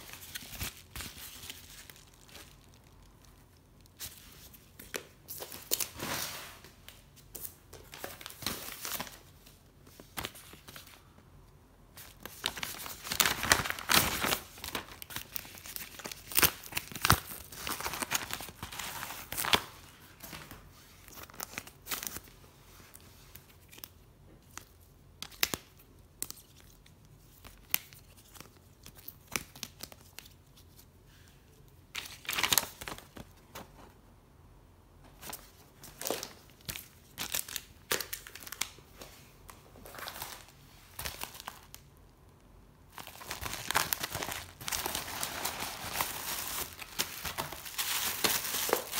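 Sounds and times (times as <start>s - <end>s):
packaging rustling and crinkling: 12.0s - 23.9s, 35.1s - 41.9s, 42.9s - 48.9s.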